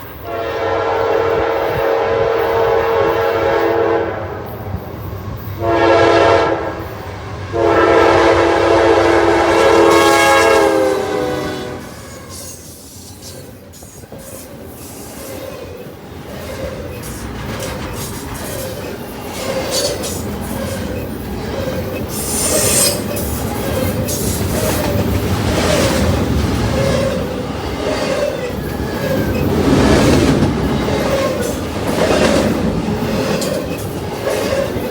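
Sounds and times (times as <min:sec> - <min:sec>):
train cars rumbling: 0:00.0 - 0:34.9
train air horn blasts: 0:00.2 - 0:04.5, 0:05.6 - 0:12.6.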